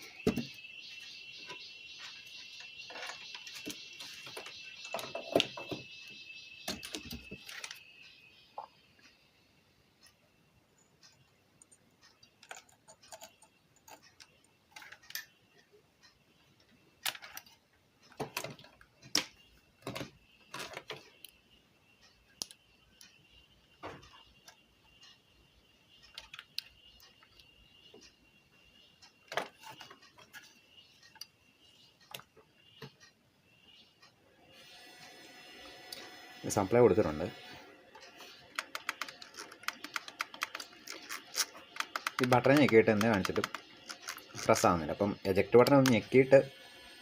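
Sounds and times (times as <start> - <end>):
faint high-pitched tone: 0.0 - 9.8, 33.7 - 38.4, 42.2 - 47.0
clicks and knocks of handled wiring: 1.4 - 7.8, 11.0 - 15.3, 17.0 - 21.4, 26.0 - 28.0, 38.0 - 44.7, 45.5 - 46.2.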